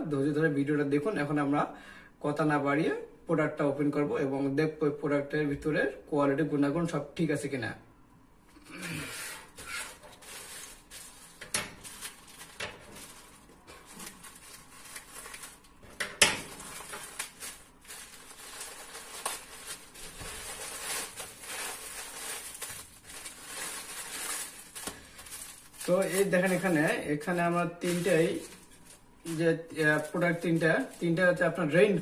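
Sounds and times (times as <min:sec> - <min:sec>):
packaging rustling: 0:08.8 - 0:31.4.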